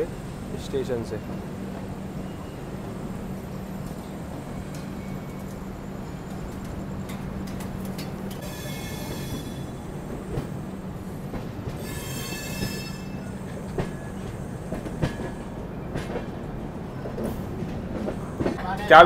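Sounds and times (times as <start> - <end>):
train rumbling on rails: 0.0 - 19.0
high-pitched wheel squeal: 8.4 - 9.8, 11.8 - 13.4.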